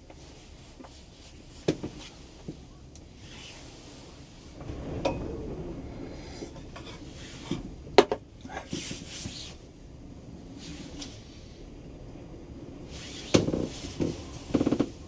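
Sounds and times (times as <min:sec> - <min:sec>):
low rumble: 0:04.0 - 0:08.7.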